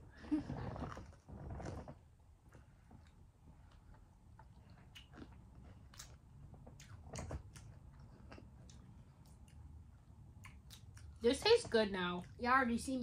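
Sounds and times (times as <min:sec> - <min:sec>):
chewing crunchy candy: 0:03.0 - 0:11.2.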